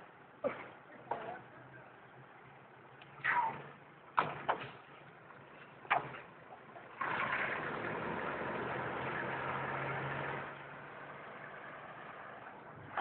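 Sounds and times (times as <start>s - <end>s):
car engine humming: 4.9s - 13.0s.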